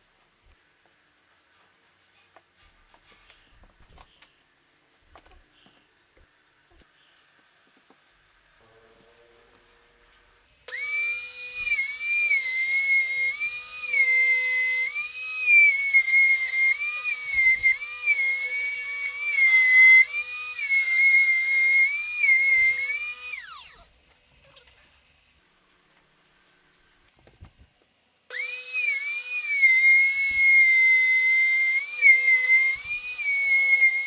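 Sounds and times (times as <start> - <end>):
wood router whining: 10.7 - 23.9, 28.3 - 34.0.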